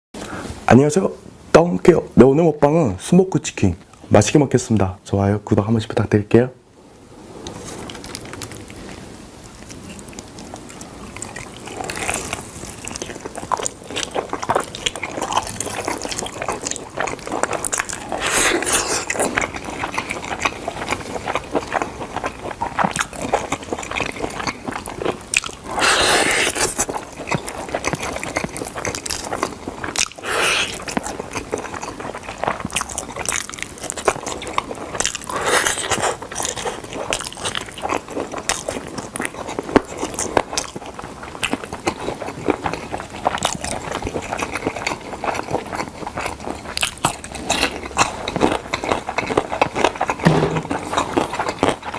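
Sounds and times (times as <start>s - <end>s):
crackly mouth clicks: 7.4s - 50.3s
biting and chewing: 7.5s - 51.9s
crunchy bites: 10.7s - 31.5s.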